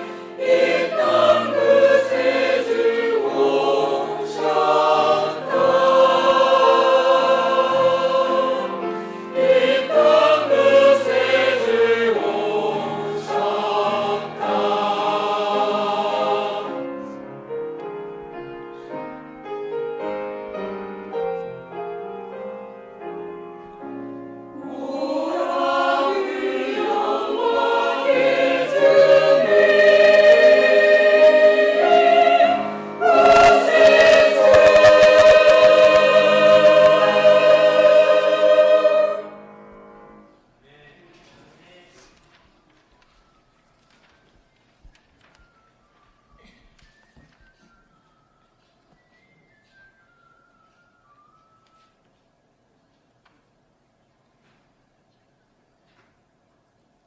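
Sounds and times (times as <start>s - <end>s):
choir singing: 0.0s - 17.2s, 24.5s - 40.3s
instrumental accompaniment: 16.7s - 40.3s.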